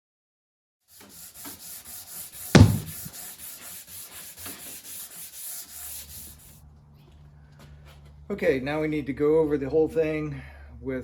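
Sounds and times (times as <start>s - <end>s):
sandpaper rubbing wood: 1.0s - 6.6s
loud knock: 2.6s - 3.1s.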